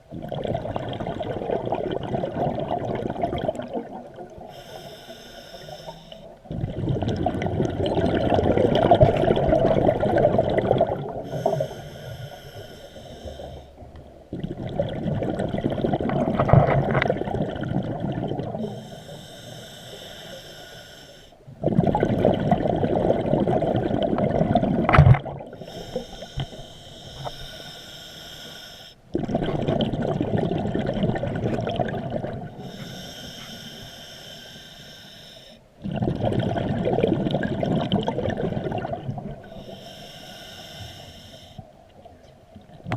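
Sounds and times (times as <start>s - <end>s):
exhaled bubbles rushing: 0.1s - 4.5s, 6.5s - 11.6s, 14.3s - 18.8s, 21.6s - 25.6s, 29.1s - 32.6s, 35.8s - 39.6s
scuba regulator breathing underwater: 4.4s - 7.4s, 10.4s - 13.9s, 18.2s - 21.4s, 25.5s - 29.8s, 32.0s - 36.1s, 38.6s - 41.8s.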